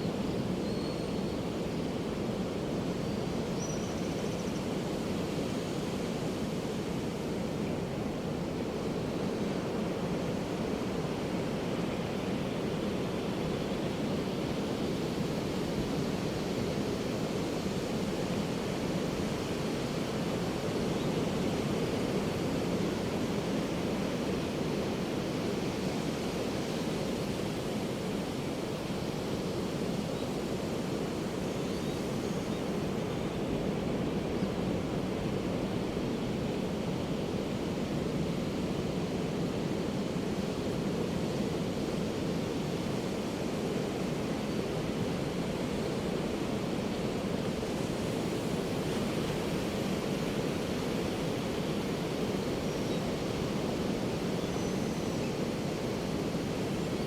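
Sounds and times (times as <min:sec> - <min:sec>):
ocean surf on beach: 0:04.5 - 0:57.0.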